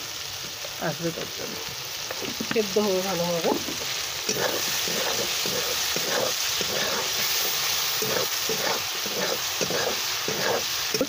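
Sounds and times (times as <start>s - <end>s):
vegetables sizzling in hot oil: 0.0s - 11.0s
metal spatula scraping wok: 3.8s - 11.0s.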